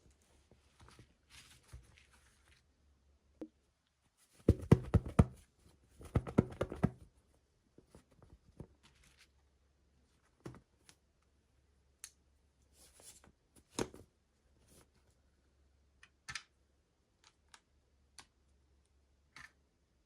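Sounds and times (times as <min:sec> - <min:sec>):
soft rustles: 0:00.0 - 0:02.7.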